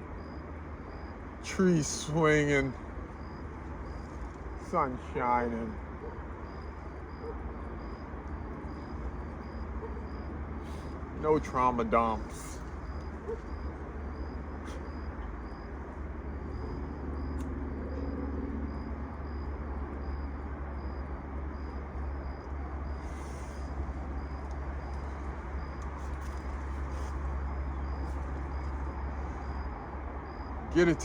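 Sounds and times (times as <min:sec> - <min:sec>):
low outdoor rumble: 0:00.0 - 0:31.0.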